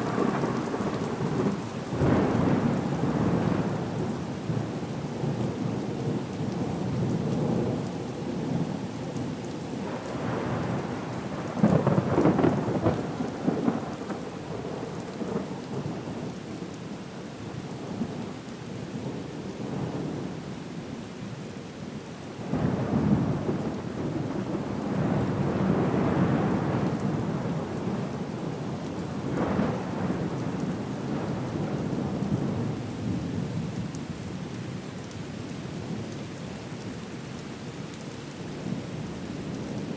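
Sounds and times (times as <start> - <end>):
rolling thunder: 0.0 - 3.9
steady rain: 0.0 - 39.9.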